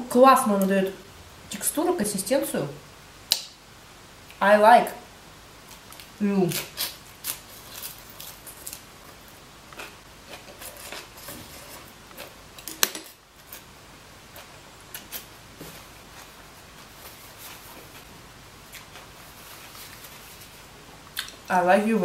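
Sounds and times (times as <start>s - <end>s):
mouth clicks and smacks: 21.1s - 21.4s.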